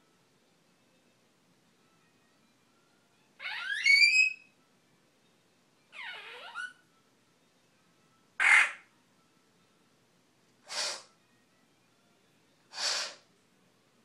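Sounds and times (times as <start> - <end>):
parrot raspy hissing calls: 8.4 - 8.8, 10.6 - 11.1, 12.7 - 13.3.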